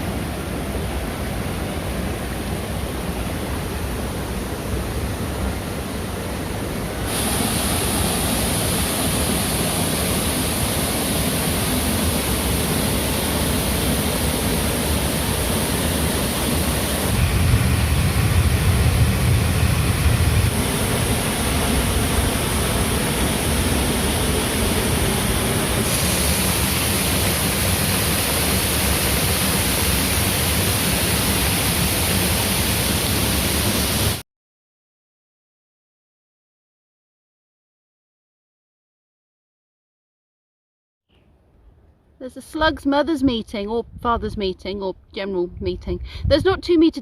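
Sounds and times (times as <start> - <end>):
waterfall rushing: 0.0 - 34.2.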